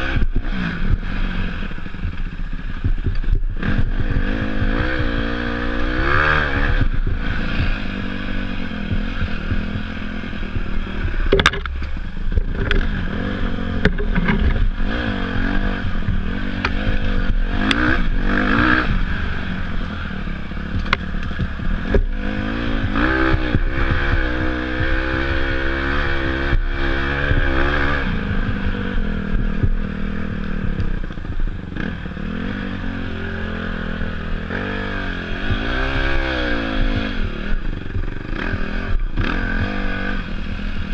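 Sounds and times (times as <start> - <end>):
dirt bike engine revving: 0.0 - 40.9
bike knocking on rough ground: 8.9 - 13.0, 13.7 - 15.1.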